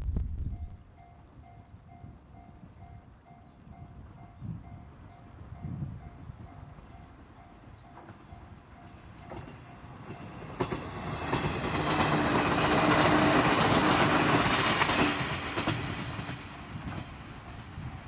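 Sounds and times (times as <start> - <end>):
electric train passing: 0.5 - 18.0
wheels clicking over rail joints: 7.8 - 17.7.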